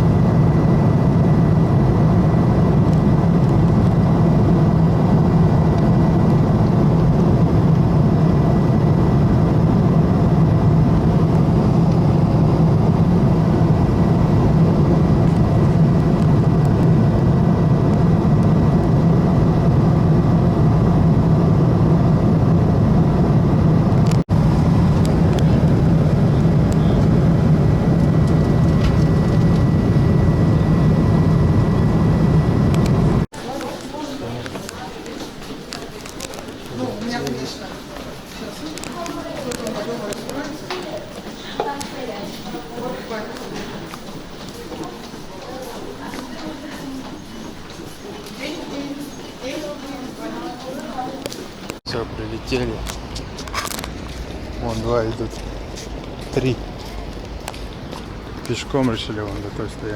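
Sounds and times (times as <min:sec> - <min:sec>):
faint high whine: 0:00.0 - 0:33.3
vehicle interior drone: 0:00.0 - 0:33.3.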